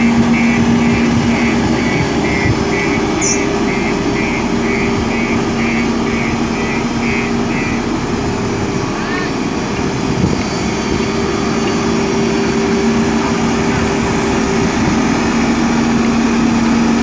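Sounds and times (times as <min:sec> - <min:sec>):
high pulsing beeping alarm: 0:00.0 - 0:07.9
diesel engine running: 0:00.0 - 0:17.0.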